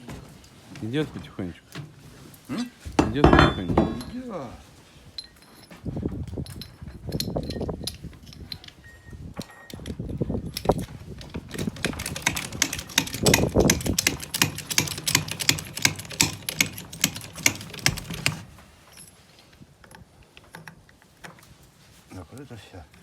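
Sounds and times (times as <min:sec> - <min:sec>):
rapid metallic clicking: 0:11.5 - 0:18.4.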